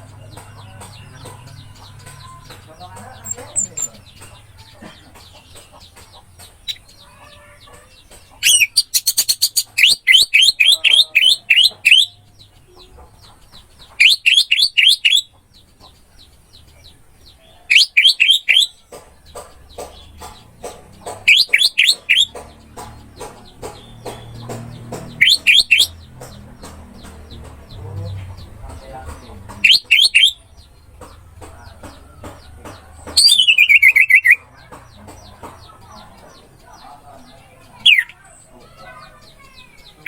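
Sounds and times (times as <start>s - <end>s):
thrush singing whistled notes: 8.5s - 12.2s, 14.0s - 15.3s, 17.7s - 18.8s, 21.3s - 22.3s, 25.1s - 26.1s, 29.6s - 30.5s.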